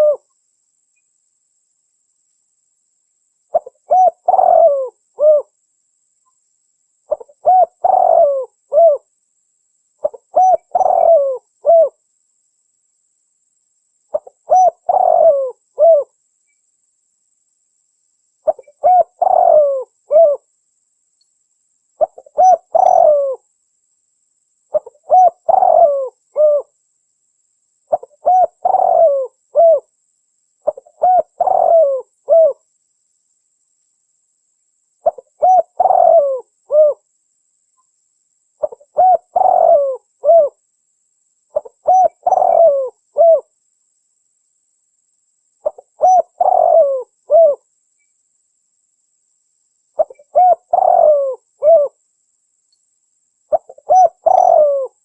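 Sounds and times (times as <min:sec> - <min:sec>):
dove cooing: 0:00.0 - 0:00.3, 0:03.5 - 0:05.5, 0:07.1 - 0:09.1, 0:10.0 - 0:12.0, 0:14.1 - 0:16.1, 0:18.4 - 0:20.4, 0:22.0 - 0:23.4, 0:24.7 - 0:26.7, 0:27.9 - 0:29.9, 0:30.6 - 0:32.6, 0:35.0 - 0:37.0, 0:38.6 - 0:40.6, 0:41.5 - 0:43.5, 0:45.6 - 0:47.6, 0:50.0 - 0:52.0, 0:53.5 - 0:55.0.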